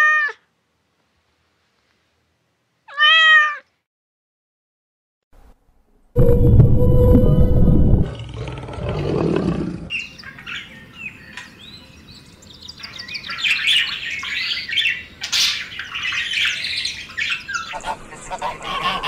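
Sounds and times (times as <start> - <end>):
low rumbling hum: 6.1 - 9.9
bird chicks begging chirps: 10.0 - 19.0.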